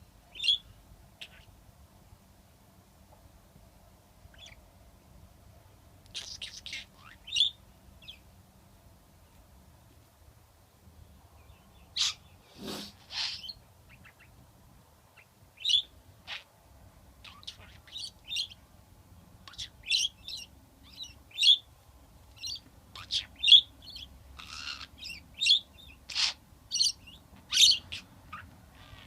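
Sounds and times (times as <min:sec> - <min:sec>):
budgerigar chirping: 0:00.3 - 0:01.5, 0:04.3 - 0:04.6, 0:06.1 - 0:08.2, 0:11.9 - 0:14.4, 0:15.2 - 0:16.5, 0:17.2 - 0:18.6, 0:19.4 - 0:21.7, 0:22.3 - 0:29.0.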